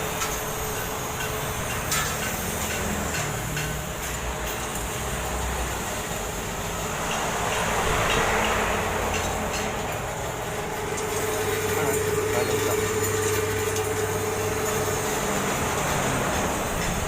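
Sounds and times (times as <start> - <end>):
meat-cutting machine humming: 10.0 - 17.0.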